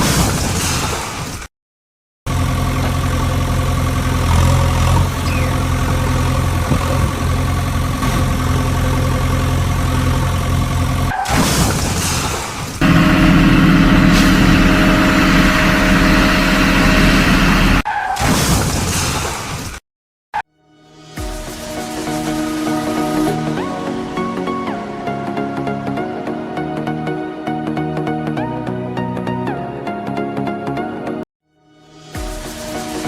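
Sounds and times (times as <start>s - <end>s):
engine idling: 2.3s - 11.1s, 12.8s - 17.8s.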